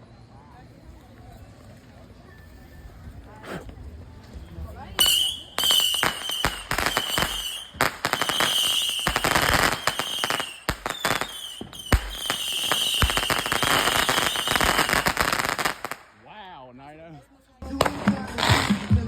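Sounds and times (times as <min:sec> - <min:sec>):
fireworks crackling bangs: 0:00.8 - 0:16.2, 0:17.6 - 0:19.0
high firework whistle: 0:04.3 - 0:16.0.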